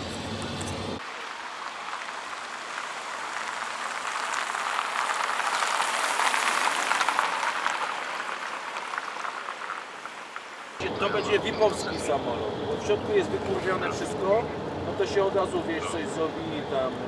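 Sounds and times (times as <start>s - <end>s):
crowd cheering: 10.8s - 17.0s.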